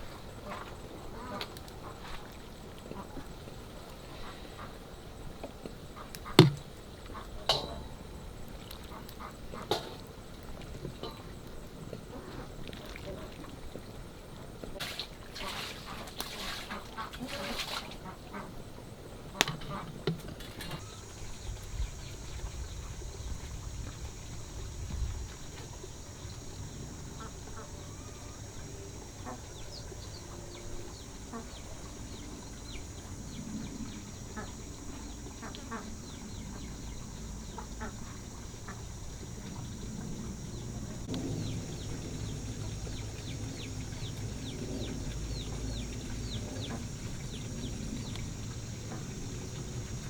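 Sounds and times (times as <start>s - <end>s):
birds chirping: 19.3s - 50.0s.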